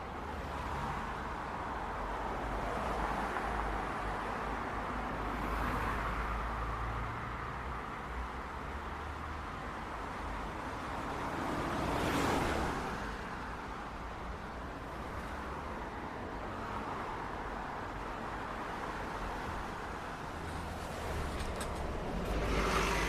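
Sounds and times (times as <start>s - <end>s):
steady hum of traffic: 0.0s - 23.0s
vehicle passing close by: 20.7s - 23.0s.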